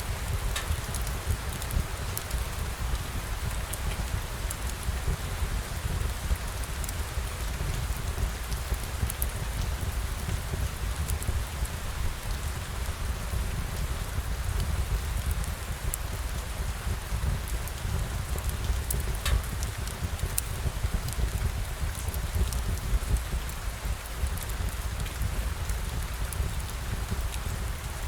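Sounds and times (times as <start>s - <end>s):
steady rain falling: 0.0s - 28.0s
faint ticks: 0.5s - 2.3s, 18.4s - 20.5s.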